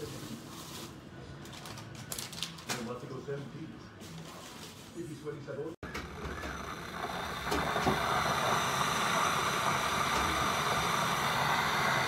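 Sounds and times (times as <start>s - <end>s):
electric kettle heating water: 5.8s - 12.0s.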